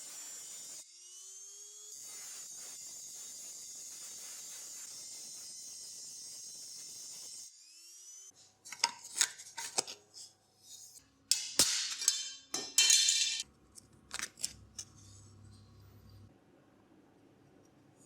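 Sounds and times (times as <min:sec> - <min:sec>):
metal tools clinking: 0:11.3 - 0:13.4.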